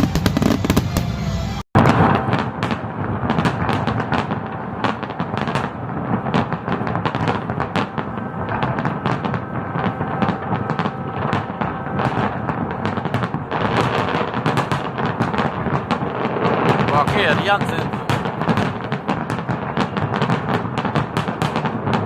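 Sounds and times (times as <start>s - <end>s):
fireworks cracks and bangs: 0.0s - 1.2s, 1.8s - 22.0s.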